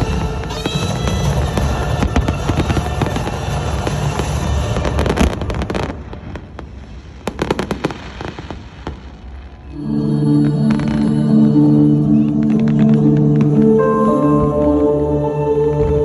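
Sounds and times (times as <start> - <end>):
fireworks exploding and crackling: 0.0 - 9.8.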